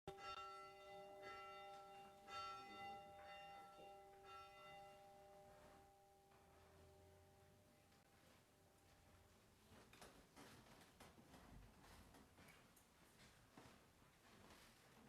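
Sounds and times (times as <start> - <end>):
faint bell strikes ringing: 0.1 - 8.1.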